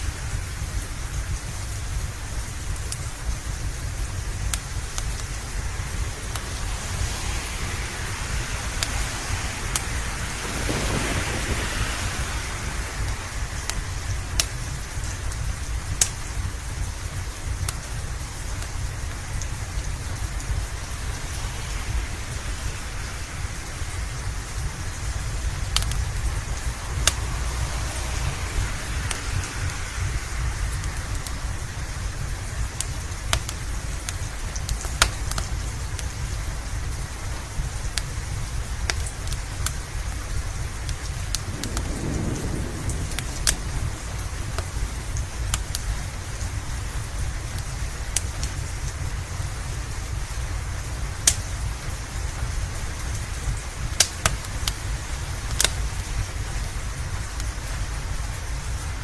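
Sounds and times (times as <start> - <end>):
low rumble: 0.0 - 34.7, 39.9 - 47.8
steady rain: 0.0 - 59.0
wood fire crackling: 0.0 - 59.0.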